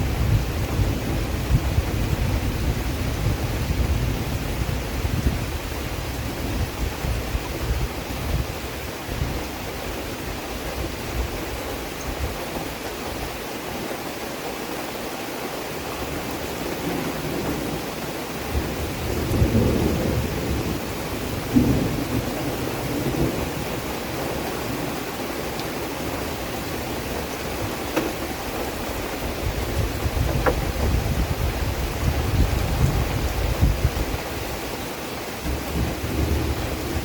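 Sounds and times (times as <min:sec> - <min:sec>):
rain hiss: 0:00.0 - 0:37.0
low rumbling: 0:28.1 - 0:34.2.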